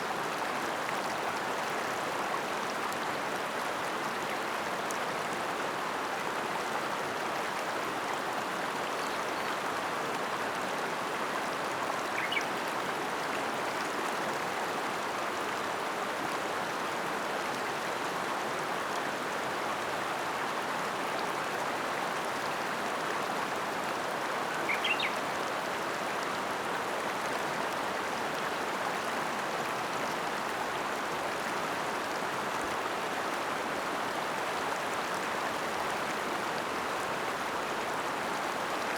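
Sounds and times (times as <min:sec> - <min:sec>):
river water rushing: 0:21.8 - 0:38.9.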